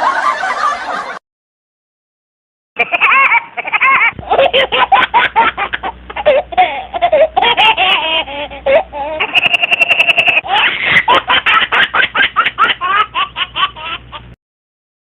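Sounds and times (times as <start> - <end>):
high-pitched giggling: 2.8 - 14.4.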